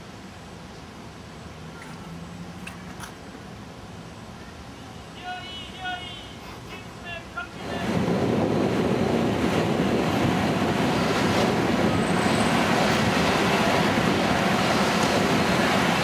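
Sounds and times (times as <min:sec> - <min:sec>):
steady loud rushing noise: 0:05.2 - 0:16.0.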